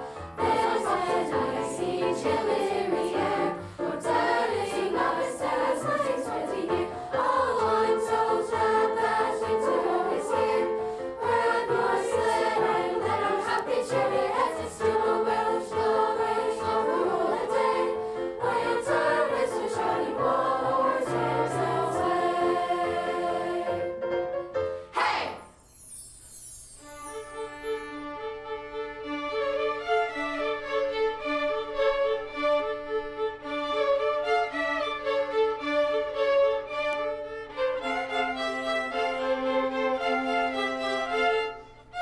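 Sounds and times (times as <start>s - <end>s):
children's choir singing: 0.0s - 24.0s, 24.9s - 25.5s.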